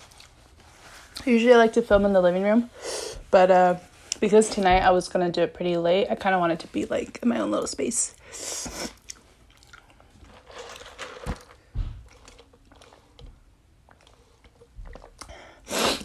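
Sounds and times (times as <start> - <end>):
soft low thumps: 4.6 - 5.2, 11.7 - 12.2
chewing food: 9.0 - 11.2, 12.1 - 15.3
sipping through a straw: 15.7 - 16.0.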